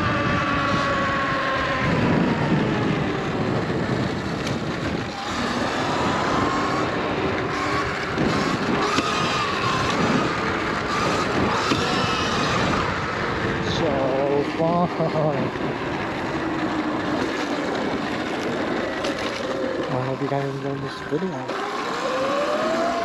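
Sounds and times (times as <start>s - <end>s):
electric motor whine: 0.0s - 23.0s
steady rush of noise: 0.0s - 23.0s.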